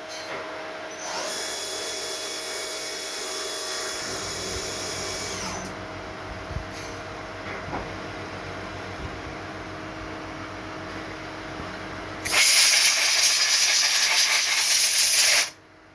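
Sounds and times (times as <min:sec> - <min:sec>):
motor hum: 0:00.9 - 0:06.9.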